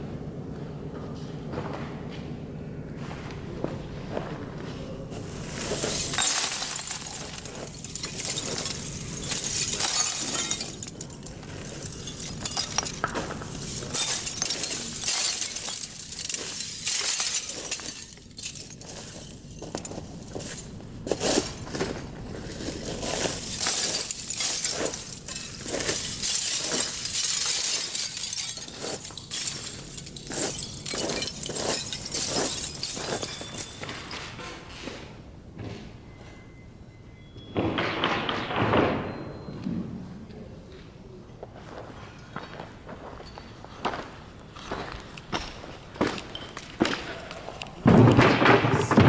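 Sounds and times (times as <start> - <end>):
clattering and crashing of hard material: 5.1 - 34.4, 46.0 - 49.0
glassy clinks and screeches: 5.2 - 34.4.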